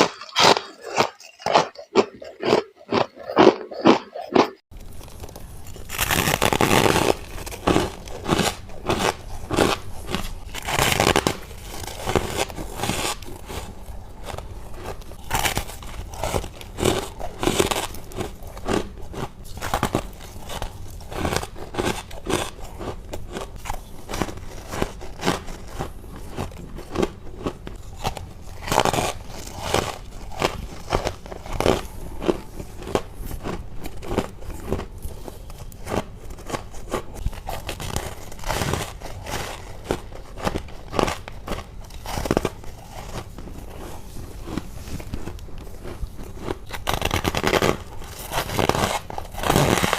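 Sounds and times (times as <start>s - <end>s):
crunching ice frost bites: 0.0s - 13.7s.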